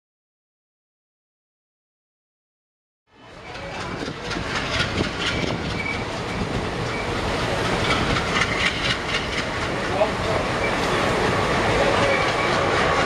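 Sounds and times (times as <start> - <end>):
train coaches rumbling on track: 3.1 - 13.0
wheels clacking over rail joints: 3.2 - 13.0.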